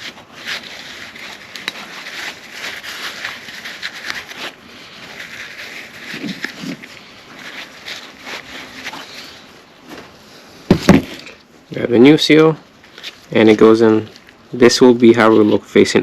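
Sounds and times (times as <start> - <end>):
soft rustling: 0.0 - 16.0.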